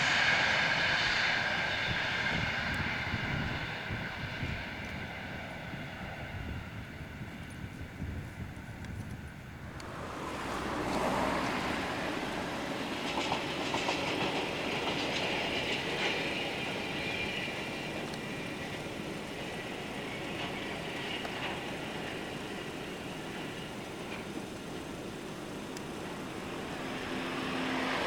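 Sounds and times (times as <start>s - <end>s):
train running on rails: 0.0s - 28.0s
wheel clicks over rail joints: 9.7s - 22.6s.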